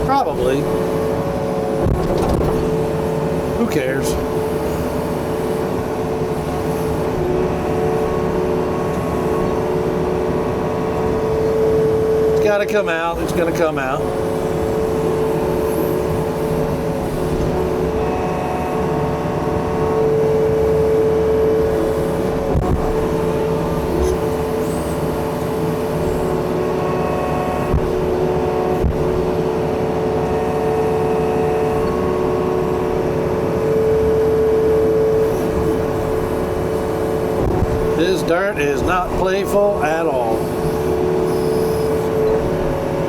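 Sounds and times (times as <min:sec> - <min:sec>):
excavator diesel engine working: 0:00.0 - 0:43.0.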